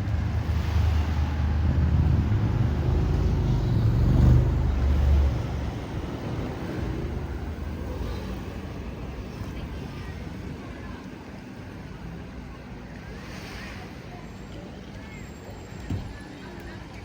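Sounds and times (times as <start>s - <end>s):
vehicle engine passing by: 0.0s - 8.1s
street ambience: 0.0s - 17.0s.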